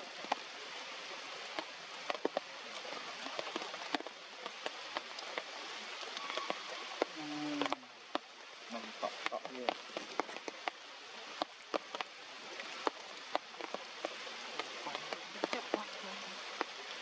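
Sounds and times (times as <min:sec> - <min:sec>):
heavy rain falling: 0:00.0 - 0:17.0
raindrops clicking on surfaces: 0:00.0 - 0:17.0.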